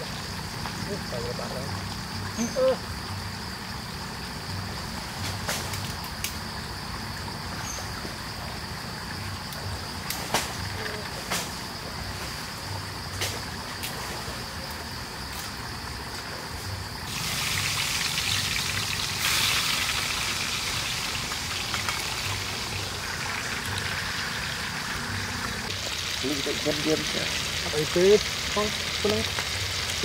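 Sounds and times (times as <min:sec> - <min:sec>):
food sizzling in oil: 0:16.9 - 0:30.0.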